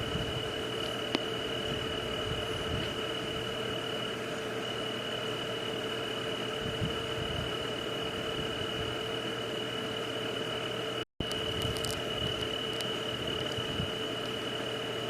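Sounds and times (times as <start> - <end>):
high-pitched insect chorus: 11.2 - 15.0.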